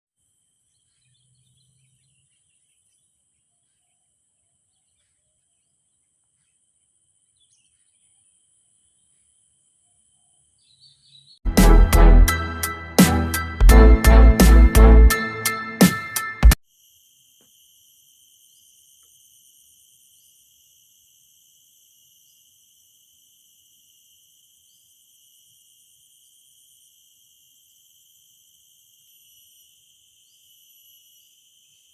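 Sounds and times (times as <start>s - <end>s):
faint bird chirps: 0.6s - 11.4s
insect drone: 16.6s - 31.9s.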